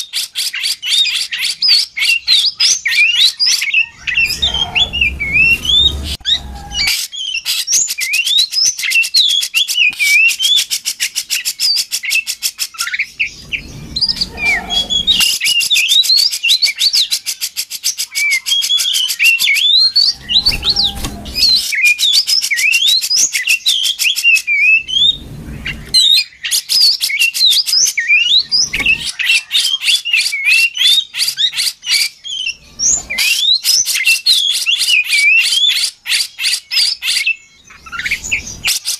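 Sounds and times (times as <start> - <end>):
low rumbles: 3.8 - 6.9, 13.2 - 15.3, 19.9 - 21.6, 24.8 - 26.0
bird singing whistles and clicks: 5.6 - 13.3.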